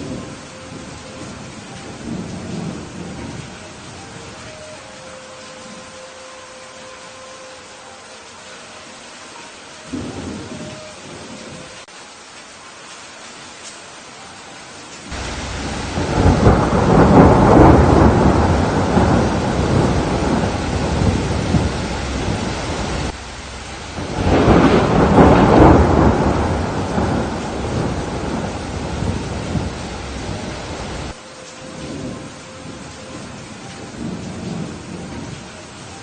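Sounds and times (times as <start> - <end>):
thunder rumbling: 0.0 - 5.9, 9.9 - 11.8, 15.1 - 35.6
steady rain: 0.0 - 36.0.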